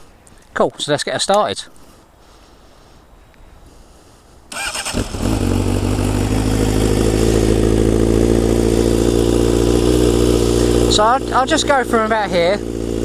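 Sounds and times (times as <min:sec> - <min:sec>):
electric starter cranking: 0:04.5 - 0:05.6
motorcycle engine idling: 0:04.6 - 0:13.0.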